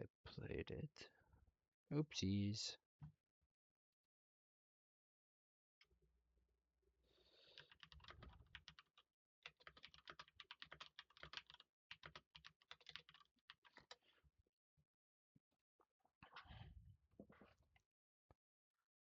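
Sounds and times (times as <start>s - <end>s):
typing on computer keyboard: 7.4s - 14.0s.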